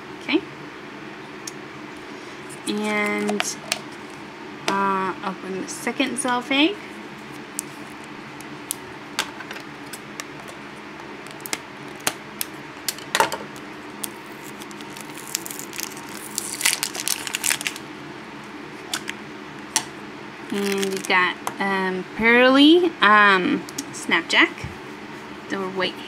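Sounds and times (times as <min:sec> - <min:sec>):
crinkling: 0:07.2 - 0:17.8, 0:20.5 - 0:21.2.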